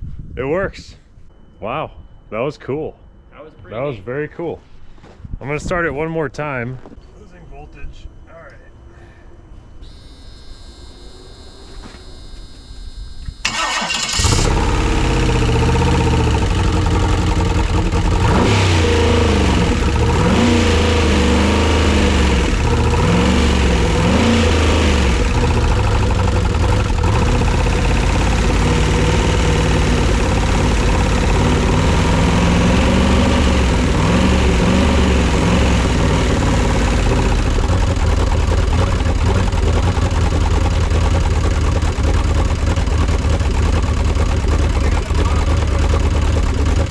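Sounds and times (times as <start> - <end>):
engine cranking and starting: 13.4 - 20.8, 21.5 - 46.9
engine idling: 13.4 - 46.9
engine revving: 13.4 - 46.9.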